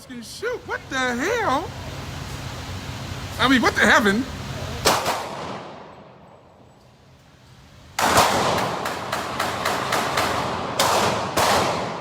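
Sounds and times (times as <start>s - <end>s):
handgun shots with echo: 4.8s - 5.8s, 8.0s - 12.0s.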